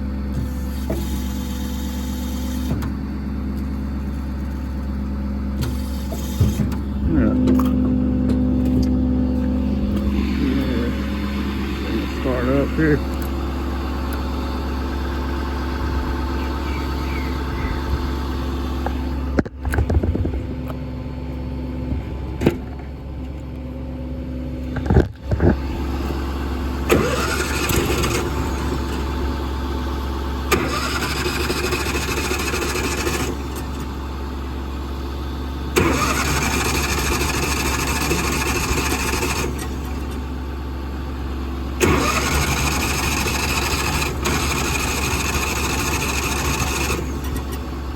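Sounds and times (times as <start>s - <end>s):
diesel engine idling: 0.0s - 47.9s
engine cranking over: 5.5s - 20.7s, 24.6s - 34.1s, 35.7s - 40.4s, 41.8s - 47.9s.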